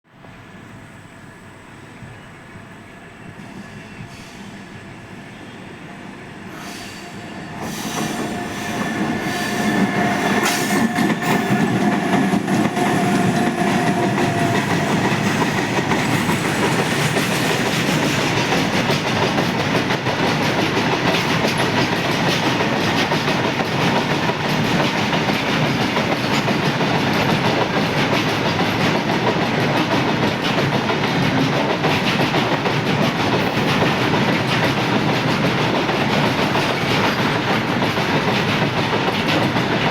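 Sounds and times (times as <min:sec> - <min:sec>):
locomotive whine: 0:00.2 - 0:18.7.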